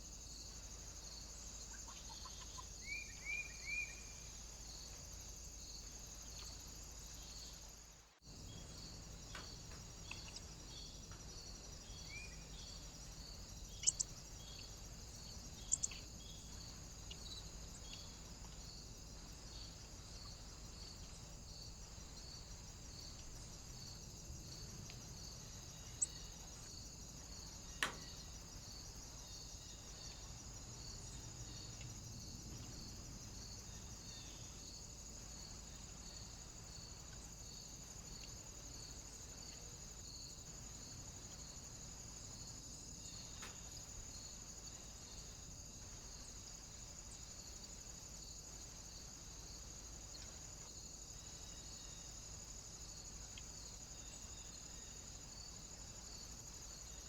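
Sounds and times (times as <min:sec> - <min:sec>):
steady high pulsing hiss: 0:00.0 - 0:57.0
small bird chirping: 0:01.6 - 0:04.2, 0:11.8 - 0:18.2, 0:25.8 - 0:26.4.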